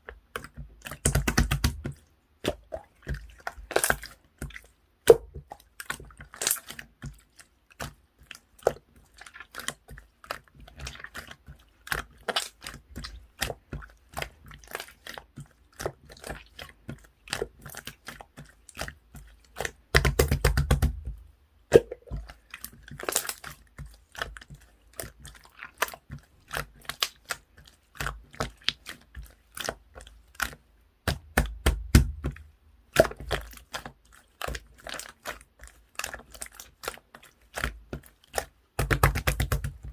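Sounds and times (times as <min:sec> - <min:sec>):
slime squeezed by hand: 0:21.7 - 0:24.4.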